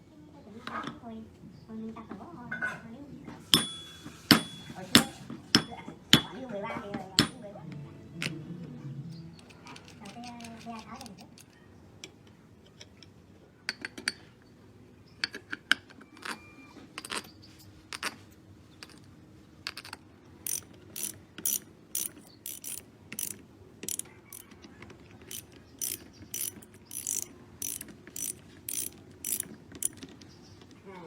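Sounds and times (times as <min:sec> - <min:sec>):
tool knocks and clicks: 0:03.5 - 0:06.4.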